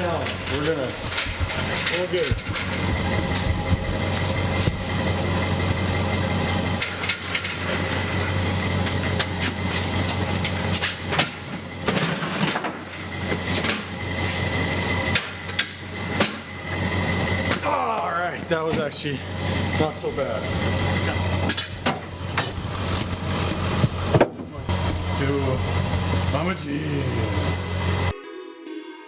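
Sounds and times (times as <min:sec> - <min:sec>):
metal clanks and knocks: 0:00.0 - 0:05.2, 0:06.8 - 0:14.0, 0:15.0 - 0:16.6, 0:20.8 - 0:25.1
low engine hum: 0:00.0 - 0:28.1.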